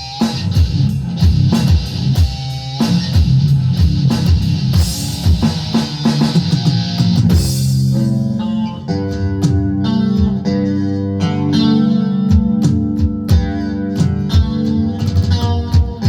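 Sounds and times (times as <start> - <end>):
rock music: 0.0 - 16.0.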